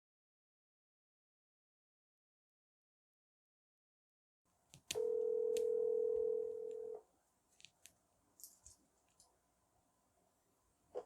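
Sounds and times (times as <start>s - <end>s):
telephone ringing tone: 5.0s - 7.0s.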